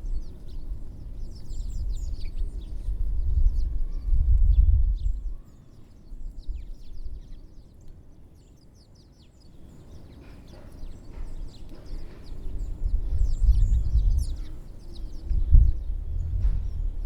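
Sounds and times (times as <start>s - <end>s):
songbirds chirping: 0.0s - 17.0s
low rumble: 15.3s - 17.0s.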